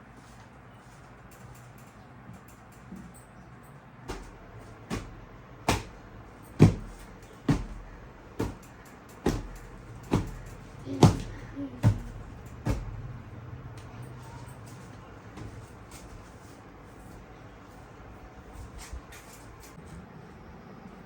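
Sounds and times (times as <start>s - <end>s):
sharp knocks: 4.1s - 13.1s.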